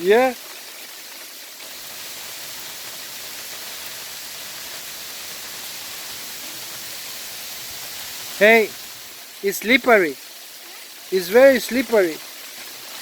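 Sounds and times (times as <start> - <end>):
hail and rain falling: 0.0 - 13.0.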